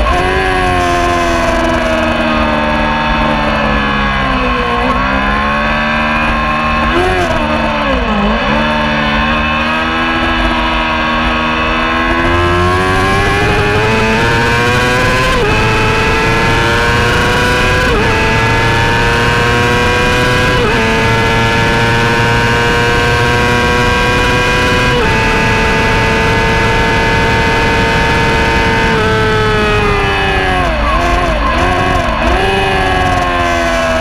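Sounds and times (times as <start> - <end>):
racing motorcycle engine: 0.0 - 34.0.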